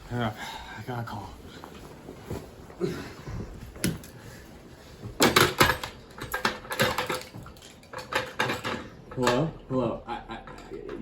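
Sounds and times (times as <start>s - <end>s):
hard objects clattering: 5.2s - 9.5s.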